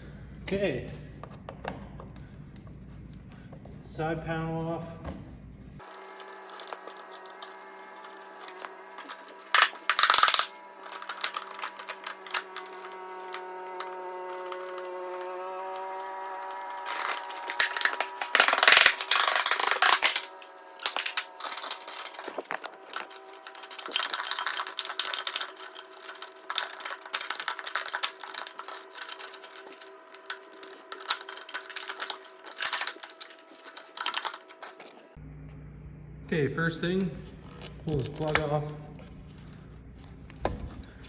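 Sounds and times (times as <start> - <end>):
tools clattering and rattling: 5.8 - 15.3, 16.8 - 35.1.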